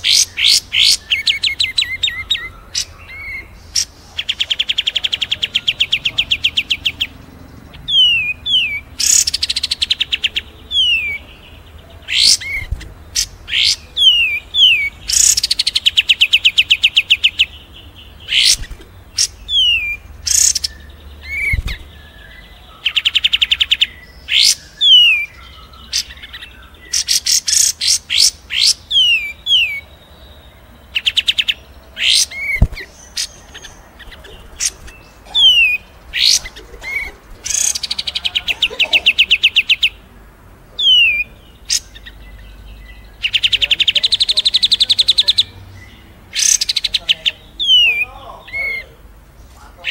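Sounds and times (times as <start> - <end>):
fast rattling bird trills: 0.0 - 40.1, 43.0 - 49.1
sharp bird chirps: 0.0 - 40.1, 40.8 - 49.9.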